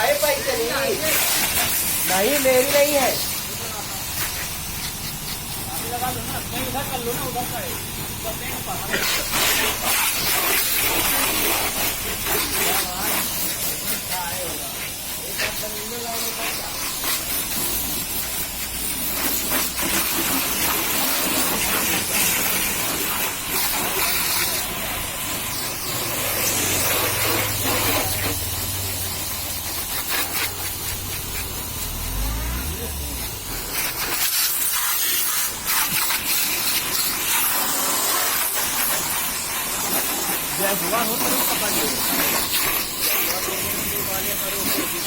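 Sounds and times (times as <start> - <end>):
water spray hissing on car: 0.0 - 45.0.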